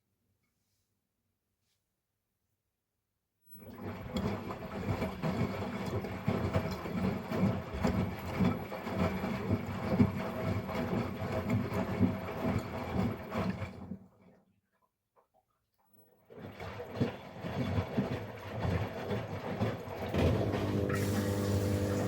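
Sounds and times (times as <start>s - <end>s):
water sloshing in drum: 3.6s - 15.6s, 16.2s - 22.0s
washing machine motor humming: 19.8s - 22.0s.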